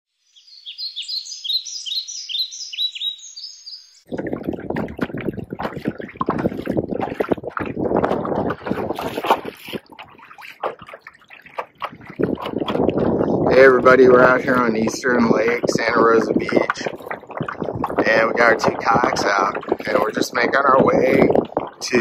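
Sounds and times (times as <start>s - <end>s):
bird chirping: 0.2s - 4.1s
water splashing against kayak hull: 4.1s - 22.0s.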